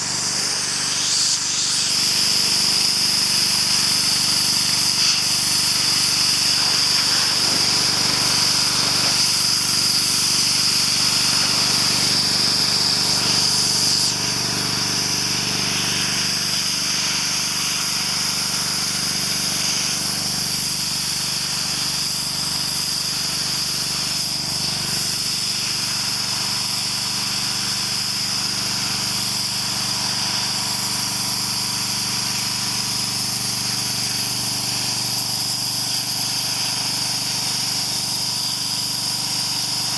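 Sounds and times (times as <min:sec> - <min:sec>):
hissing water jet: 0:00.0 - 0:14.6
pressure washer machine hum: 0:00.0 - 0:39.9.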